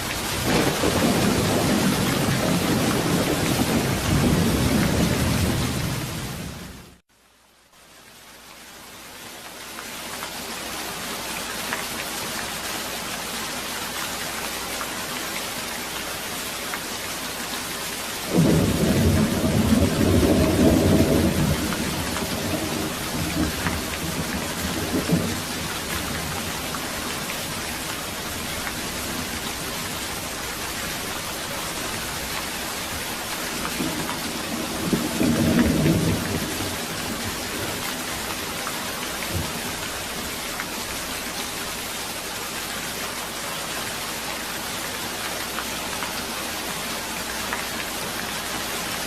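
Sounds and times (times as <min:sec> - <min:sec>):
rain hissing: 0:00.0 - 0:07.0, 0:08.3 - 0:49.0
thunder rumbling: 0:00.3 - 0:06.7, 0:18.3 - 0:32.2, 0:32.9 - 0:38.5.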